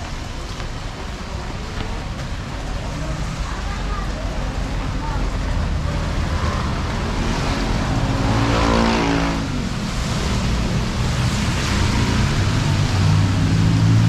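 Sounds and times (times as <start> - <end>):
rain hissing on wet road: 0.1 - 8.0, 9.4 - 14.0
another engine approaching: 4.5 - 14.0
vehicle driving past: 6.0 - 14.0.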